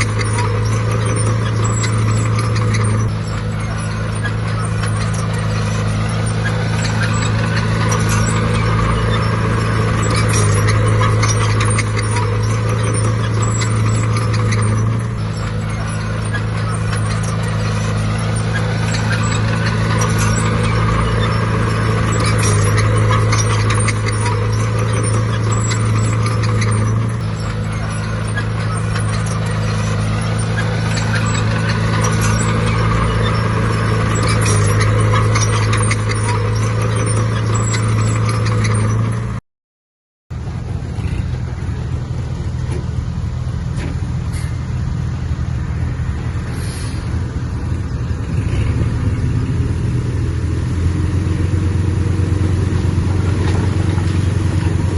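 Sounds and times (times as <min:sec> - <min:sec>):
diesel engine running under load: 0:00.0 - 0:39.4, 0:40.3 - 0:54.9
metallic rattling and clanking: 0:00.0 - 0:39.4.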